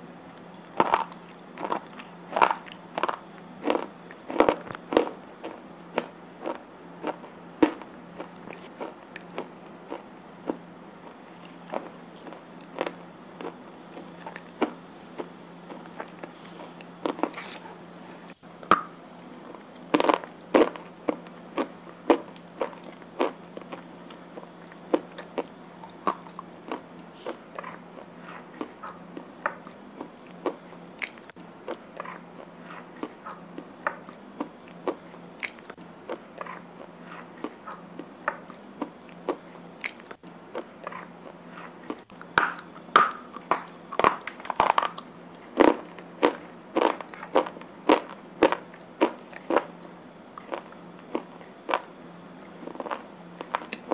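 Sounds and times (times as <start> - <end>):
person crunching slate pencils: 0.4 - 10.0, 19.4 - 49.7.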